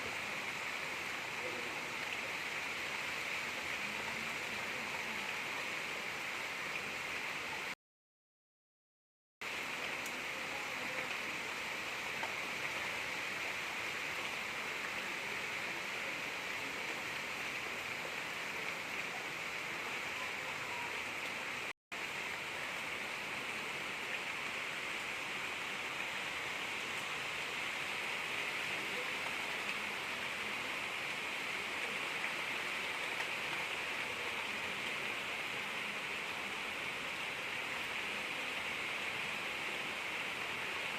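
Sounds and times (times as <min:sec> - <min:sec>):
gentle rain falling: 0:00.0 - 0:07.8, 0:09.4 - 0:40.9.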